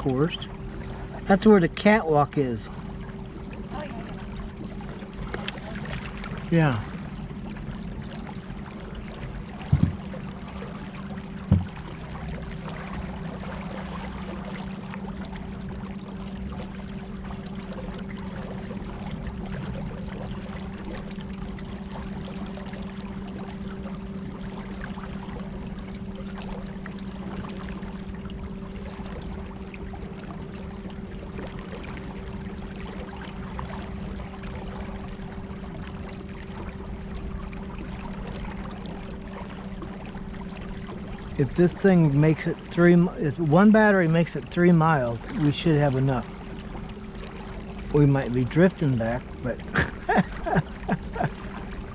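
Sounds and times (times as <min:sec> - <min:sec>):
water rushing and trickling: 0:00.0 - 0:51.9
sharp knocks: 0:09.7 - 0:10.1, 0:11.5 - 0:11.8.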